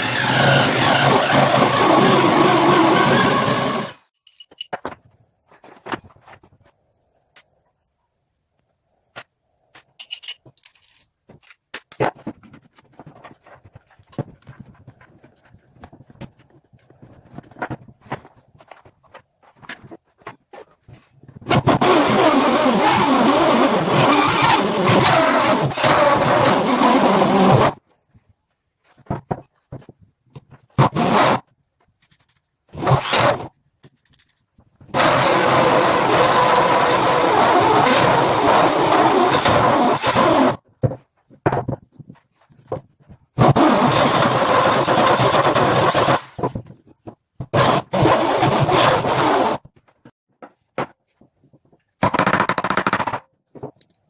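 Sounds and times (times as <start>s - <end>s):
power tool running: 0.0s - 4.0s, 21.6s - 27.8s, 35.0s - 40.6s, 43.4s - 46.4s, 47.6s - 49.6s
scraping and rubbing: 10.7s - 25.6s.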